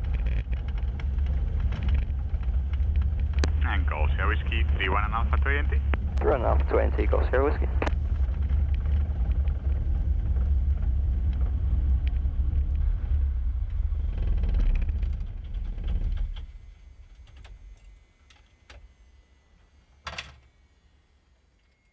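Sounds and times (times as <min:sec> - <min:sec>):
aircraft engine winding down: 0:00.0 - 0:17.0
faint clicks: 0:00.1 - 0:08.0.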